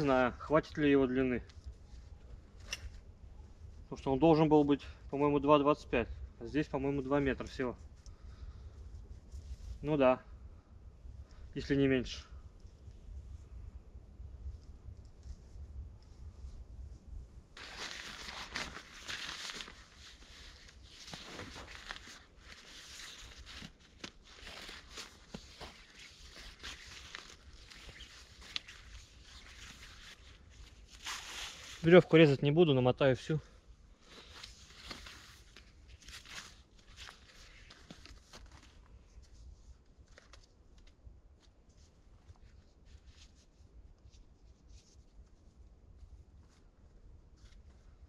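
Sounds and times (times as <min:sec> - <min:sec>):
rope rustling and scraping: 0:14.4 - 0:32.5, 0:33.8 - 0:48.0
sharp crackles and snaps: 0:17.6 - 0:31.9
dry rustling: 0:17.6 - 0:32.4.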